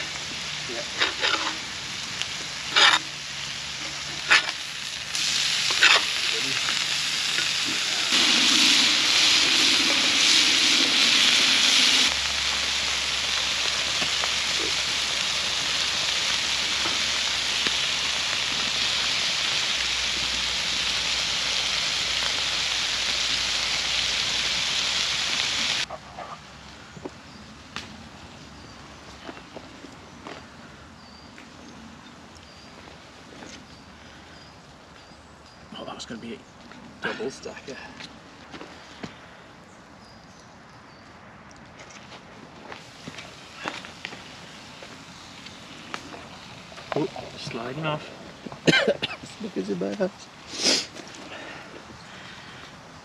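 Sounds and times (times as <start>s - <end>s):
burgers sizzling in a pan: 0.0s - 25.9s, 42.7s - 53.0s.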